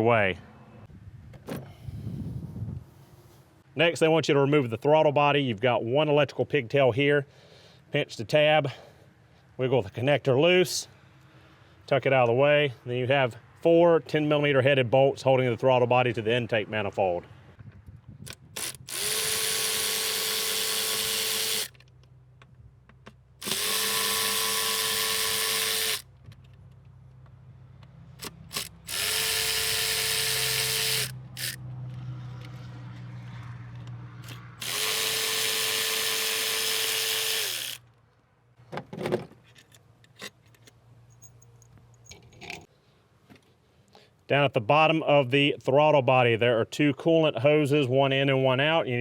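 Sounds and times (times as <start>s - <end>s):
power tool motor whine: 18.6s - 21.8s, 23.4s - 26.0s, 28.2s - 31.6s, 34.2s - 37.8s.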